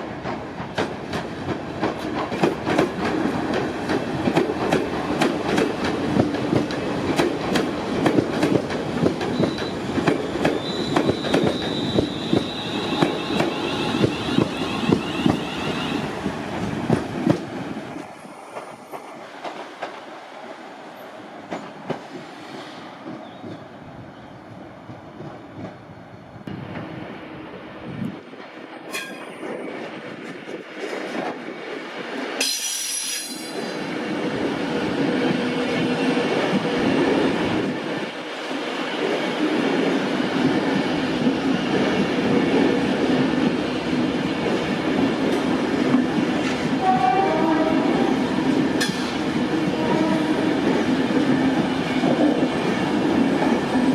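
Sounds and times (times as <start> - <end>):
train rumble: 0.0 - 53.9
high squeal: 10.5 - 16.1
train wheels clattering: 48.8 - 52.5.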